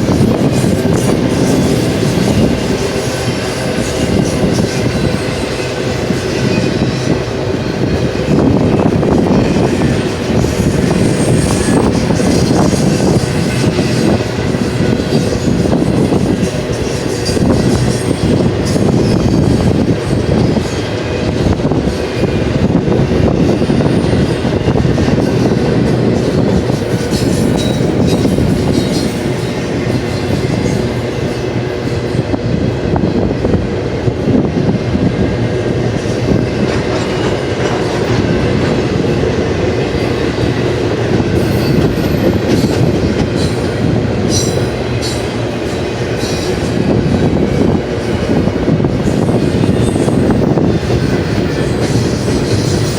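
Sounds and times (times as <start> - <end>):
freight train wheels rumbling: 0.0 - 52.9
high-pitched wheel squeaks: 8.8 - 20.8.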